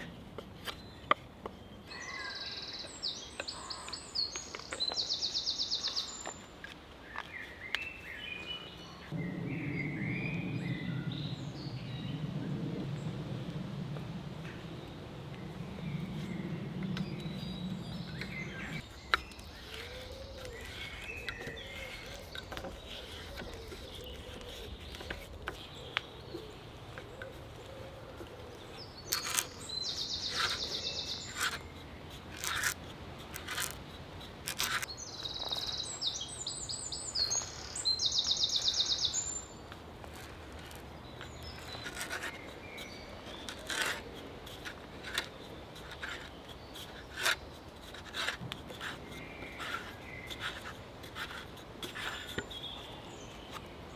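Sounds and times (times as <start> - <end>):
songbird trilling: 28.7 - 31.8, 34.9 - 39.6.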